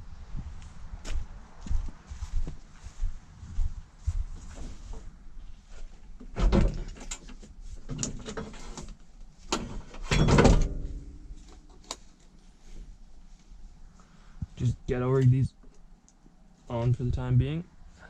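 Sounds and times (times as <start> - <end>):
car body clunks and rattles: 6.2 - 8.6, 9.5 - 11.3.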